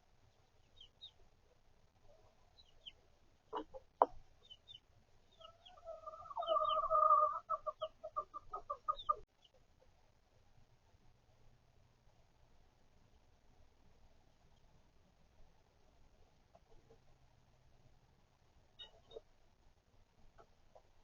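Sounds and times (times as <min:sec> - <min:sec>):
chicks peeping: 0:00.4 - 0:01.2, 0:02.5 - 0:09.6
hen clucking: 0:02.6 - 0:09.6.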